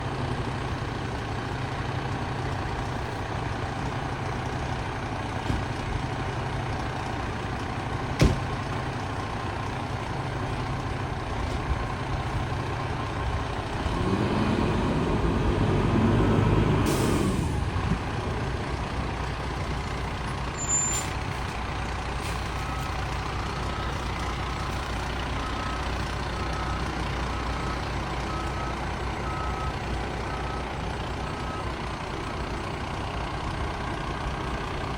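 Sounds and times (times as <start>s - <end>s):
diesel engine running: 0.0s - 34.9s
air-brake hiss: 16.7s - 17.7s.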